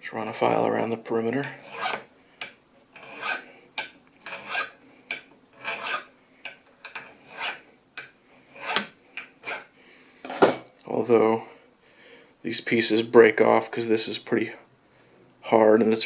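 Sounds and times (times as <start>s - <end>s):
hand file rasping on brass: 1.6s - 2.0s, 3.0s - 3.4s, 4.2s - 4.8s, 5.6s - 6.1s, 7.0s - 7.6s, 8.5s - 9.7s.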